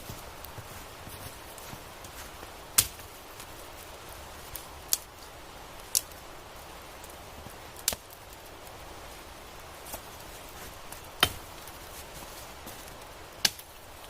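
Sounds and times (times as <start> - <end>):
wood being chopped: 2.8 - 3.0, 11.2 - 11.5, 13.4 - 13.7.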